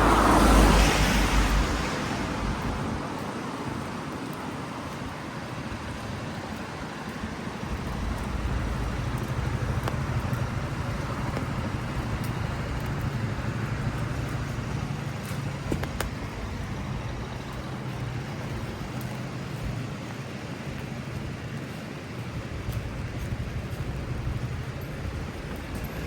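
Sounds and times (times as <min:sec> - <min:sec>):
car passing on wet street: 0:00.0 - 0:26.0
rain hiss: 0:00.0 - 0:26.0.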